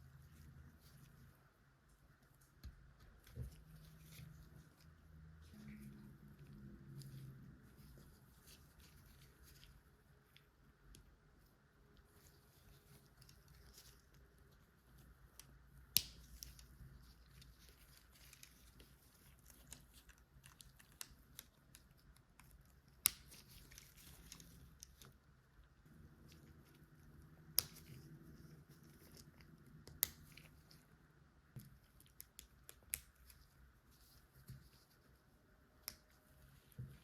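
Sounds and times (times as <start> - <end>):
soft plastic rustling: 0.0 - 37.0.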